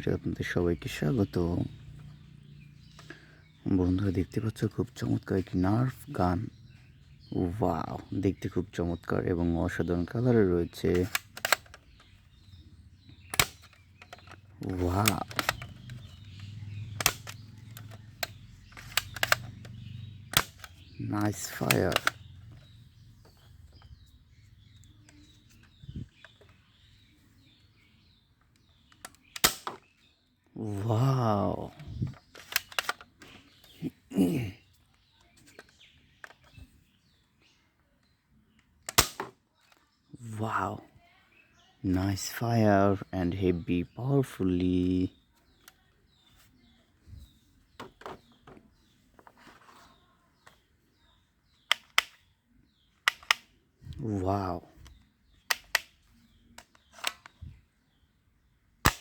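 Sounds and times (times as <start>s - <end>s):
birds chirping: 0.0s - 59.0s
small clicks: 10.2s - 27.0s, 28.4s - 30.0s, 31.7s - 33.9s, 51.6s - 52.3s, 52.9s - 54.0s, 54.8s - 57.5s
toy gun clicks and taps: 13.3s - 20.8s, 53.0s - 53.5s, 55.4s - 56.0s.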